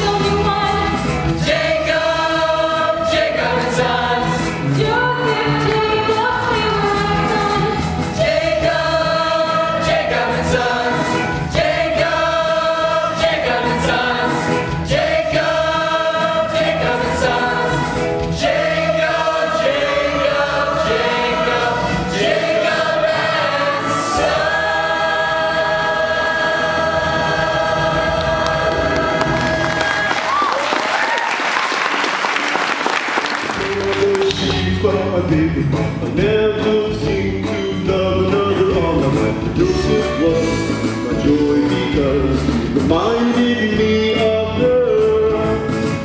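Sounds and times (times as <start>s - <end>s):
choir singing with accompaniment: 0.0s - 30.4s.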